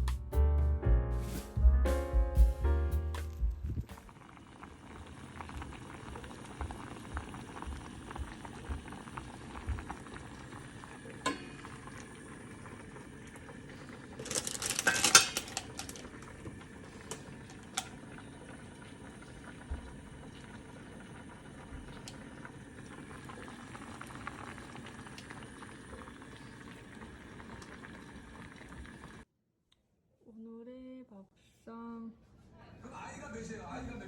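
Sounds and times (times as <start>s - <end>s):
pot of food bubbling: 3.9s - 29.3s
utensils clinking: 14.2s - 16.3s.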